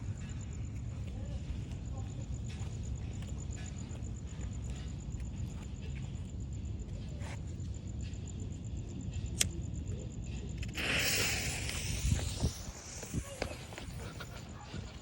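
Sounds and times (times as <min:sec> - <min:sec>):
steady low rumble: 0:00.0 - 0:15.0
firework cake hissing: 0:10.6 - 0:15.0.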